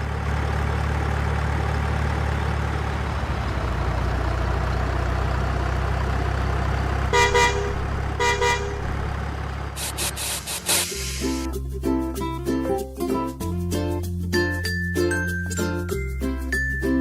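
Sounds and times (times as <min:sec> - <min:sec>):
truck engine idling: 0:00.0 - 0:11.5
truck horn toots: 0:07.1 - 0:11.4.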